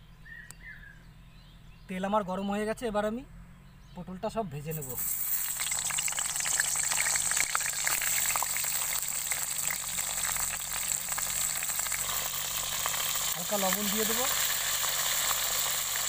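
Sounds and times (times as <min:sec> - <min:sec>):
vegetables sizzling in hot oil: 0:04.7 - 0:16.0.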